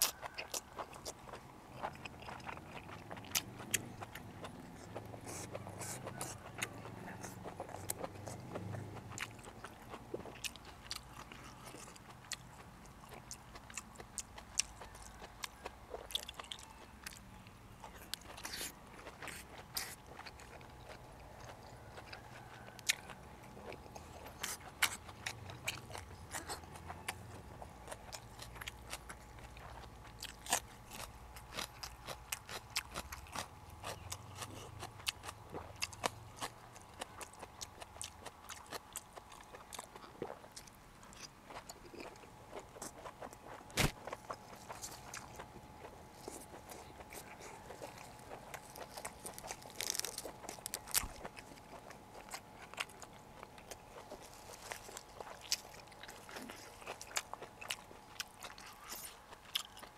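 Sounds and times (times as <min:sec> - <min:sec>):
person chewing food: 0:00.0 - 0:59.9
sharp crunches: 0:41.2 - 0:45.6, 0:46.2 - 0:59.9.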